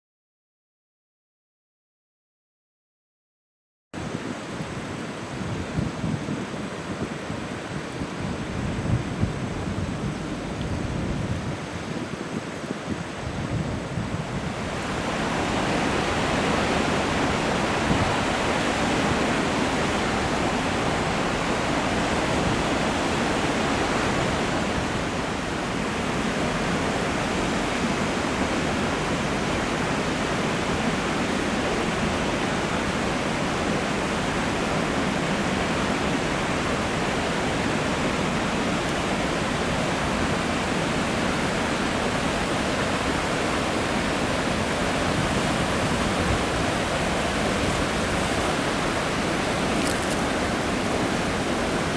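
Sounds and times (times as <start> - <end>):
rushing falling water: 14.6 - 51.9.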